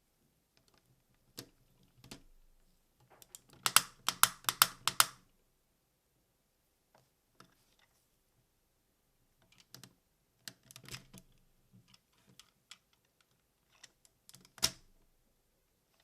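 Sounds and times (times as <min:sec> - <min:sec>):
plastic toy parts clicking: 0:03.3 - 0:05.2
sharp plastic snap: 0:03.6 - 0:05.2.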